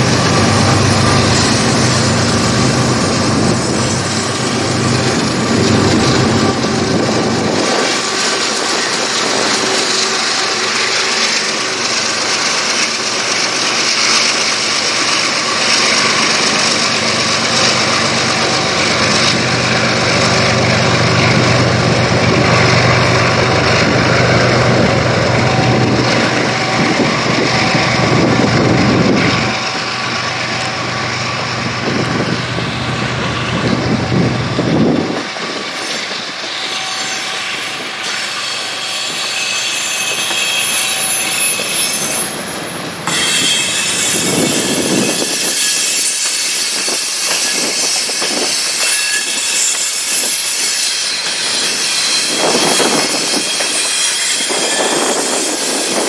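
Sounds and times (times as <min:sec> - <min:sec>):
locomotive diesel engine rumbling: 0:00.0 - 0:35.2.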